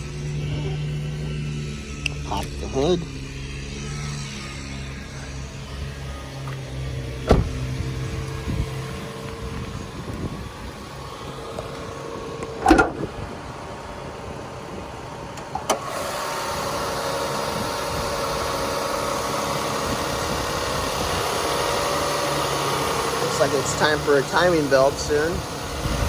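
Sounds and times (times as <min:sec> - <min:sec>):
car engine idling: 0:00.0 - 0:26.0
loud clunk: 0:07.2 - 0:07.8
hood latch click: 0:12.4 - 0:13.1.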